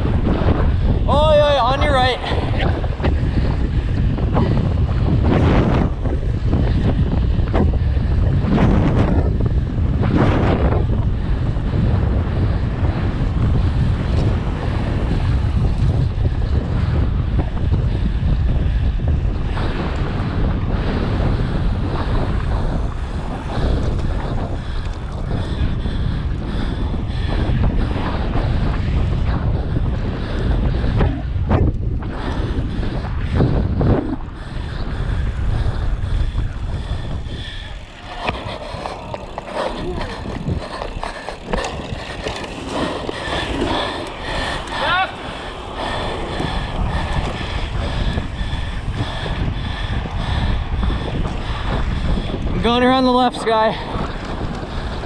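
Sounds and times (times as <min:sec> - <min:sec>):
bike ticks and rattles: 0:00.0 - 0:55.0
wind buffeting microphone: 0:00.0 - 0:55.0
bike frame and chain rattling: 0:35.2 - 0:49.3.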